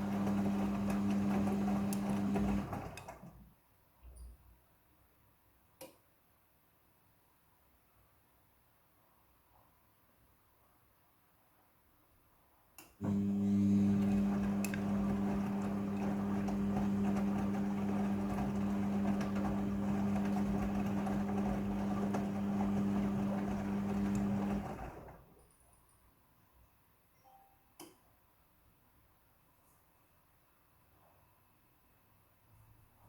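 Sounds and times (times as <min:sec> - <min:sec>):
washing machine humming: 0:00.0 - 0:03.4, 0:13.0 - 0:25.3.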